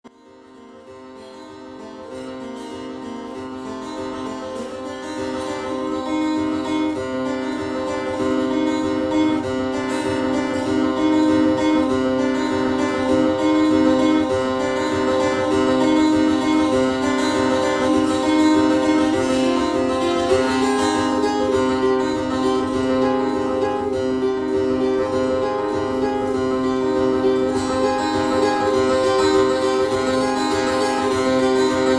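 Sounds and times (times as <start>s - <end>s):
picked guitar notes: 0.1s - 31.9s.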